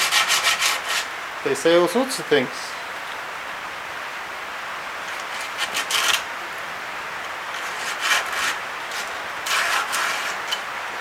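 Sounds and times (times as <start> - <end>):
sandpaper rubbing on wood: 0.0 - 1.1, 5.3 - 6.2, 7.5 - 10.6
steady hiss: 0.0 - 11.0.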